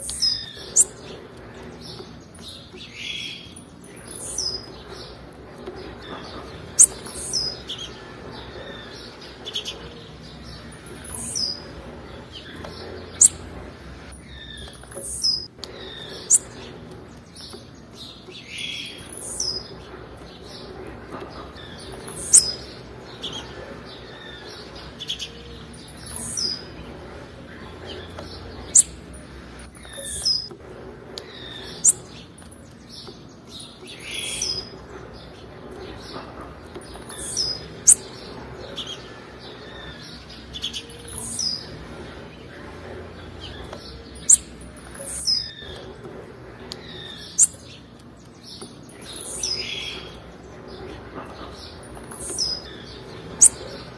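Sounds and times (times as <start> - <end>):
bird chirping: 0.0 - 53.9.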